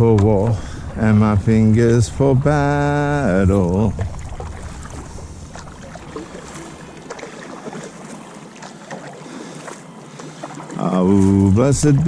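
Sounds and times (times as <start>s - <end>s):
water splashing and lapping: 0.0s - 12.0s
wind: 0.0s - 12.0s
small irregular knocks: 4.0s - 10.8s.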